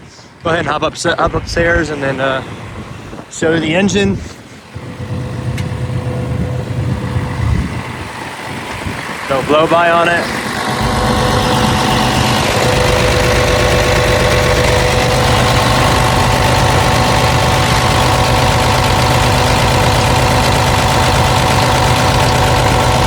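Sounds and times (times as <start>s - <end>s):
excavator diesel engine idling: 4.6s - 23.0s.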